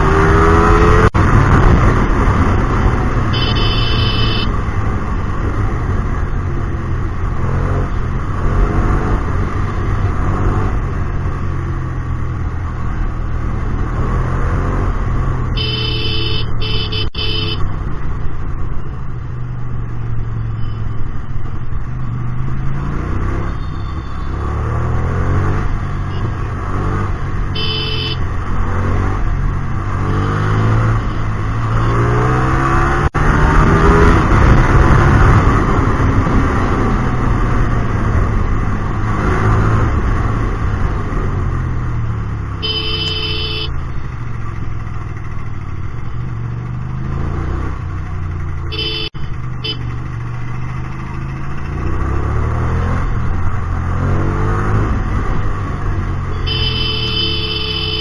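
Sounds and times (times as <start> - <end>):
motorcycle engine revving: 0.0 - 58.0
horn beeps: 3.3 - 4.6, 15.5 - 17.7, 23.4 - 24.6, 25.9 - 26.5, 27.5 - 28.2, 42.6 - 43.8, 48.6 - 49.9, 56.3 - 58.0.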